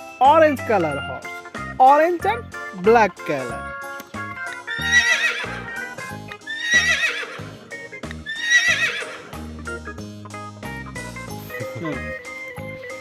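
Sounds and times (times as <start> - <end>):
background music: 0.0 - 13.0
horse whinnying: 4.8 - 5.7, 6.5 - 7.5, 8.3 - 9.3.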